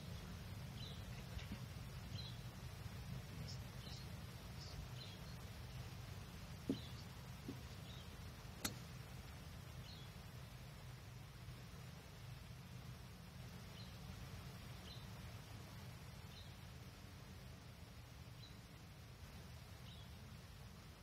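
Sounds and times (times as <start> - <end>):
small bird chirping: 0.0 - 2.6, 3.2 - 6.0, 6.6 - 8.8
dull thump: 6.6 - 7.8
sharp click: 8.6 - 8.8.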